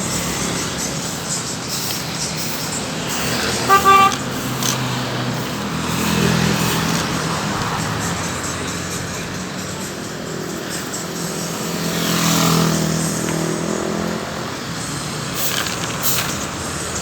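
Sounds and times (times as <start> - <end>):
road traffic engine hum: 0.0 - 17.0
vehicle horn toots: 3.4 - 4.6.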